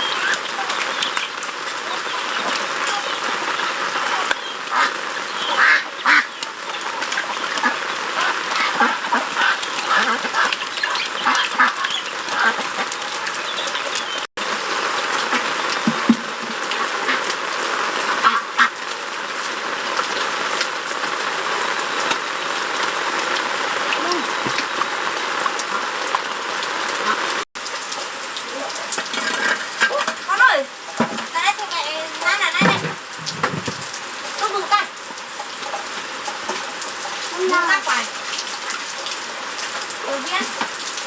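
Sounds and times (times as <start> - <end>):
ducks quacking: 0.0 - 14.3, 15.2 - 18.9.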